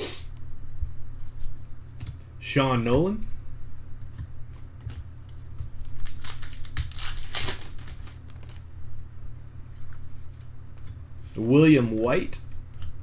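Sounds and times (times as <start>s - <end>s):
steady low hum: 0.0s - 13.0s
card wrappers crinkling: 5.3s - 8.7s.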